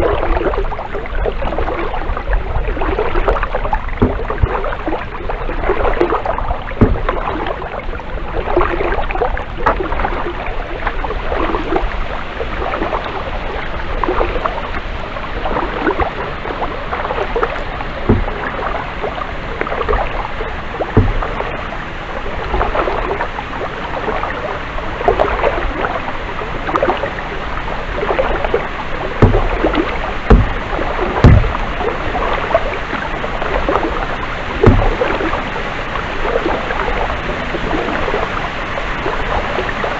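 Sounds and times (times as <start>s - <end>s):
water dripping: 0.0s - 11.8s, 15.4s - 23.3s, 27.9s - 35.5s
paddles splashing in water: 0.0s - 39.9s
sharp low thumps: 4.0s - 4.6s, 6.8s - 7.4s, 18.0s - 19.0s, 20.8s - 21.7s, 29.2s - 32.0s, 34.6s - 35.2s.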